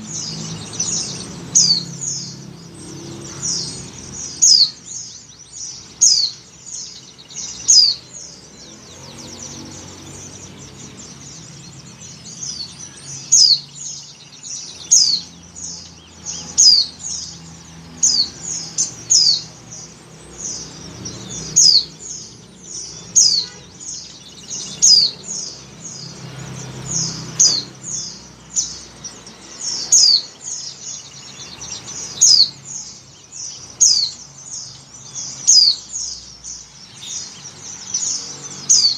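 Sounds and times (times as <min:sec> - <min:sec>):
high downward-sliding bird calls: 0:00.0 - 0:38.9.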